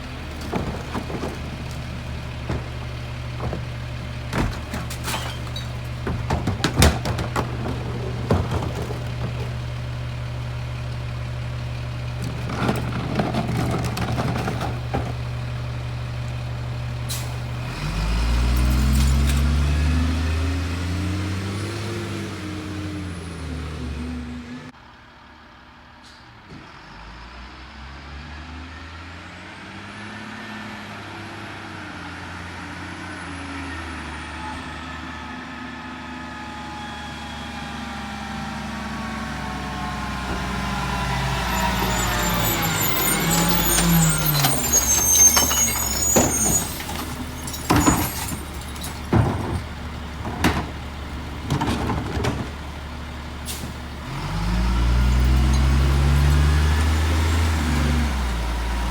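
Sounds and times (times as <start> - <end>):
clattering: 0.0 - 11.1, 11.9 - 15.8, 18.4 - 19.6, 39.8 - 52.9
garbage truck diesel engine: 0.0 - 58.9.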